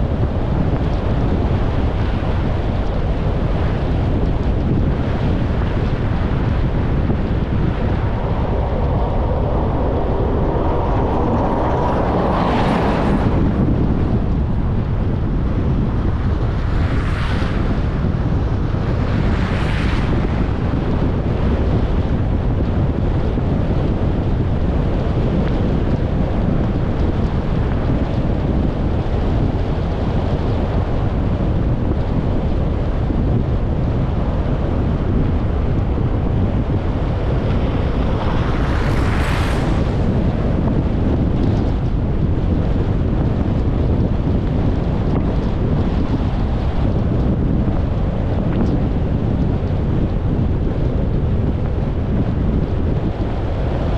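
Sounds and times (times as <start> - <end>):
car driving on road: 0.0 - 53.9
wind buffeting microphone: 0.0 - 53.9
whoosh: 7.4 - 14.5.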